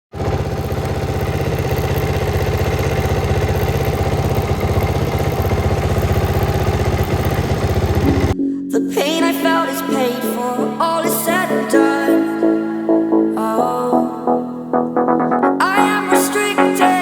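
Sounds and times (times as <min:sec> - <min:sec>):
motorcycle engine idling: 0:00.1 - 0:08.4.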